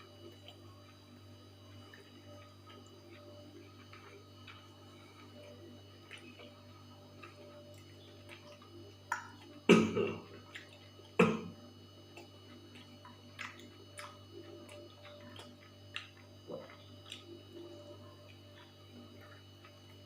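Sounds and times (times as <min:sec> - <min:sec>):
chewing mouth smacks: 0:01.8 - 0:11.2, 0:12.1 - 0:20.0.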